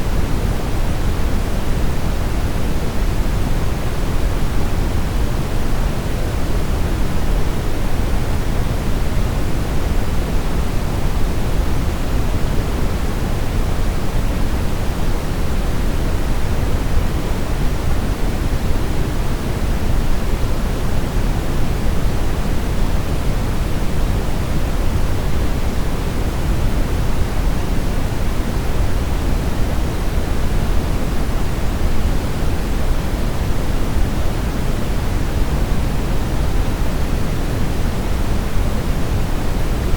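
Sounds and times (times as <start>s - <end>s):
brown noise hiss: 0.0s - 39.9s.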